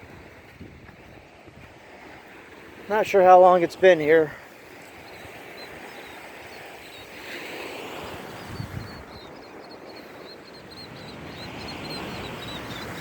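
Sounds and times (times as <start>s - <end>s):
small waves washing ashore: 0.0s - 13.0s
high bird chirps: 4.9s - 7.2s, 8.0s - 13.0s.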